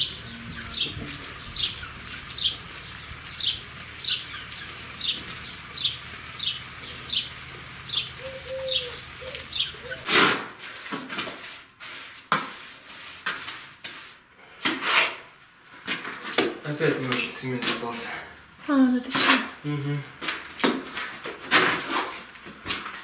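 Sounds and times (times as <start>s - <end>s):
small bird chirping: 0.0s - 10.1s
tool scraping mortar in bucket: 14.7s - 15.3s, 20.9s - 22.3s.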